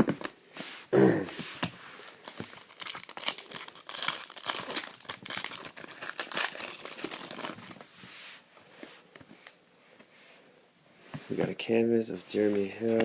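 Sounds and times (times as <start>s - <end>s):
foil wrapper tearing and crinkling: 2.0s - 7.8s.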